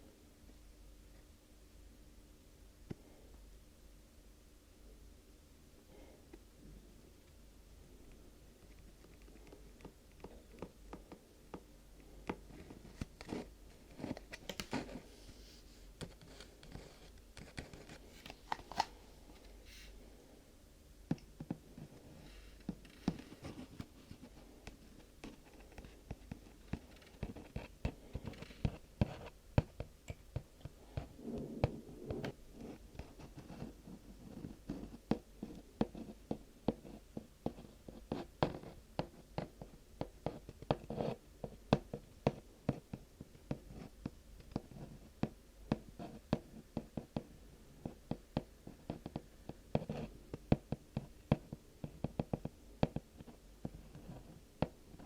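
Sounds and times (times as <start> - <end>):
soft rustling: 12.3 - 20.0.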